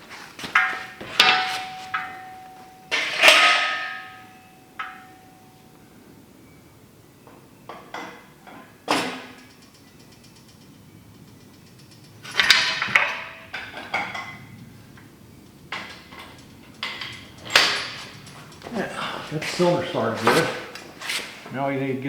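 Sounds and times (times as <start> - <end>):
metal clanks and knocks: 0.3 - 5.3, 7.7 - 9.6, 11.5 - 15.1, 15.7 - 21.5
metal ringing: 0.4 - 6.1, 7.3 - 21.4.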